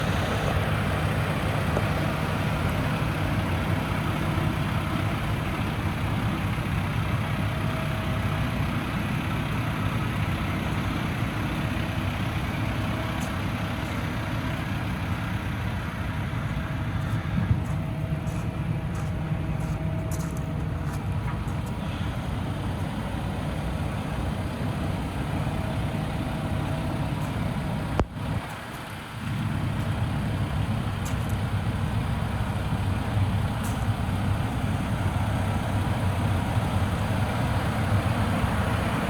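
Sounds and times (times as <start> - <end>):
diesel truck engine idling: 0.0 - 39.0.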